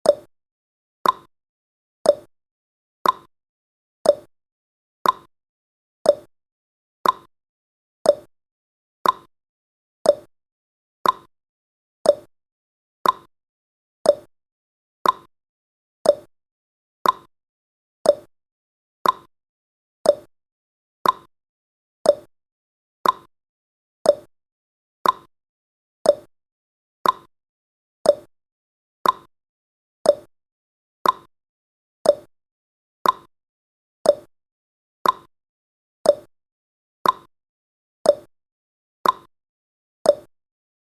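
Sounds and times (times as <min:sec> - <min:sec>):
timer ticking: 0:00.0 - 0:00.3, 0:01.0 - 0:01.3, 0:02.0 - 0:02.3, 0:03.0 - 0:03.3, 0:04.0 - 0:04.3, 0:05.0 - 0:05.3, 0:06.0 - 0:06.3, 0:07.0 - 0:07.3, 0:08.0 - 0:08.3, 0:09.0 - 0:09.3, 0:10.0 - 0:10.3, 0:11.0 - 0:11.3, 0:12.0 - 0:12.3, 0:13.0 - 0:13.3, 0:14.0 - 0:14.3, 0:15.0 - 0:15.3, 0:16.0 - 0:16.3, 0:17.0 - 0:17.3, 0:18.0 - 0:18.3, 0:19.0 - 0:19.3, 0:20.0 - 0:20.3, 0:21.0 - 0:21.3, 0:22.0 - 0:22.3, 0:23.0 - 0:23.3, 0:24.0 - 0:24.3, 0:25.0 - 0:25.3, 0:26.0 - 0:26.3, 0:27.0 - 0:27.3, 0:28.0 - 0:28.3, 0:29.0 - 0:29.3, 0:30.0 - 0:30.3, 0:31.0 - 0:31.3, 0:32.0 - 0:32.3, 0:33.0 - 0:33.3, 0:34.0 - 0:34.3, 0:35.0 - 0:35.3, 0:36.0 - 0:36.3, 0:37.0 - 0:37.3, 0:38.1 - 0:38.3, 0:39.0 - 0:39.3, 0:40.1 - 0:40.3.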